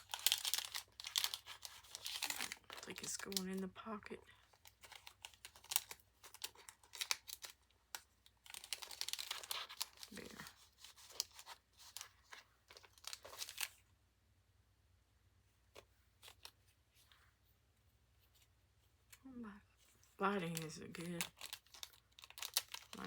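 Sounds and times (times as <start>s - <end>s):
paper crinkling and rustling: 0.0s - 3.8s, 4.4s - 13.8s, 19.8s - 23.0s.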